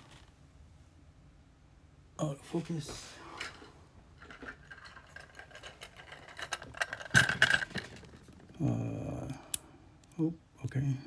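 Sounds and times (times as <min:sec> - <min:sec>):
metal lock parts clicking and rattling: 0:04.2 - 0:08.5.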